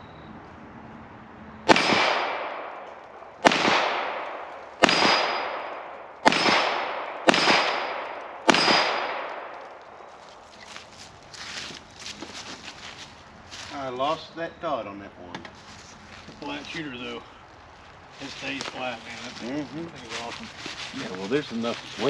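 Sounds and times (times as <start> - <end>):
pistol shots: 1.7 - 9.9.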